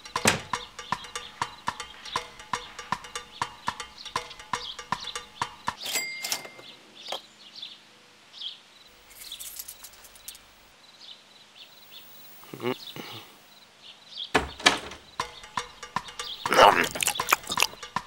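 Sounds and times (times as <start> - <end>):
high bird chirps: 0.0 - 7.8.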